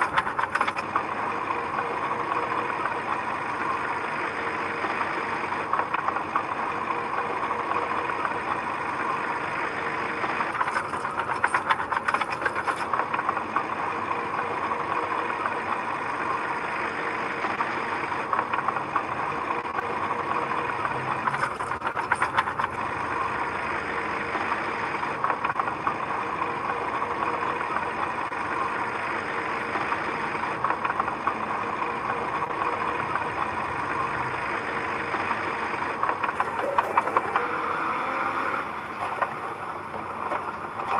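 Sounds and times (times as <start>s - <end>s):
rapid rattling: 0.0s - 4.2s, 10.2s - 16.6s, 17.4s - 23.8s, 35.2s - 37.6s
heavy machinery diesel engine: 0.0s - 40.9s.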